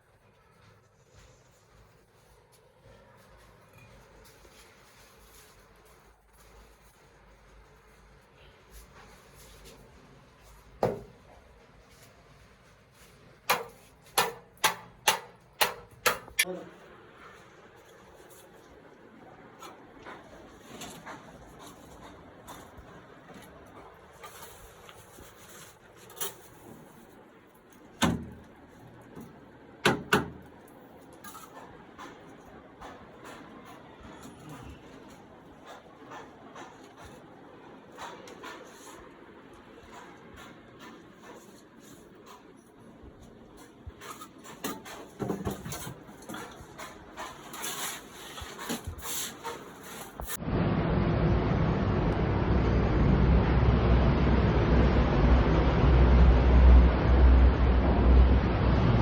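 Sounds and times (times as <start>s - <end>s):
sharp knocks: 13.5s - 16.4s
loud steady rushing noise: 50.4s - 59.0s.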